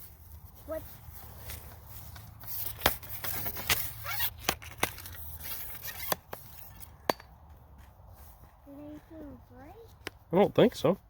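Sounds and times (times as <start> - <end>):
crinkling handling noise: 0.0 - 7.0.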